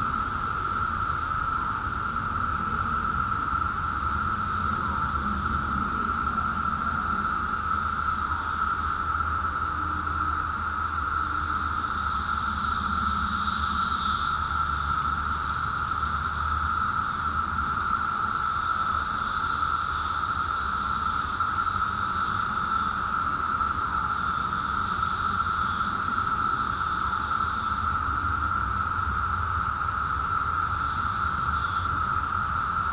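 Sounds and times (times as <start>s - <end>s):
cicadas droning: 0.0s - 32.9s
high hiss: 0.0s - 32.9s.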